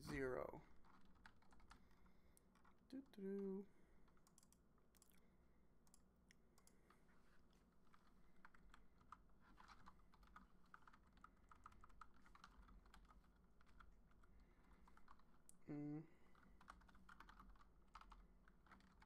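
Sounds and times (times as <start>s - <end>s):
typing on computer keyboard: 0.8s - 2.8s, 4.1s - 5.2s, 7.9s - 15.5s, 16.3s - 19.0s.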